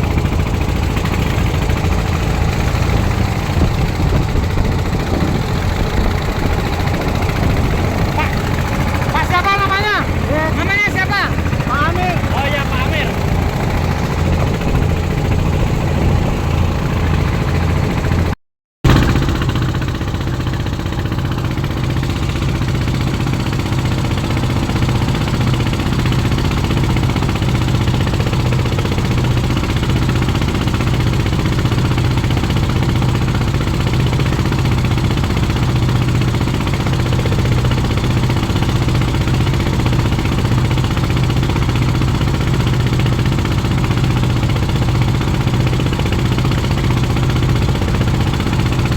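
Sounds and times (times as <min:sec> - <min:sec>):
boat motor humming: 0:00.0 - 0:48.9.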